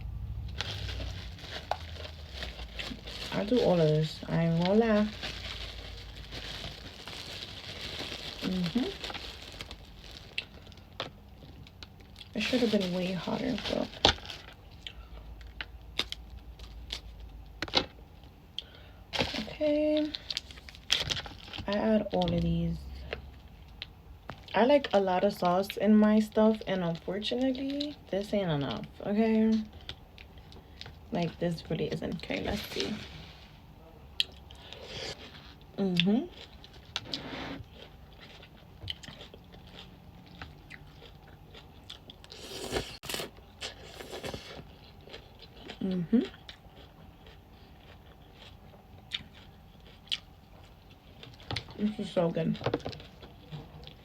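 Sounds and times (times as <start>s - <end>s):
person chewing food: 34.2s - 51.8s.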